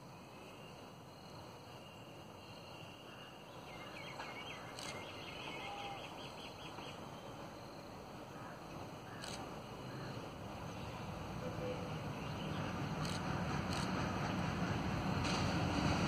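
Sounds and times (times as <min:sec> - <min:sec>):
small bird chirping: 0:03.6 - 0:07.2.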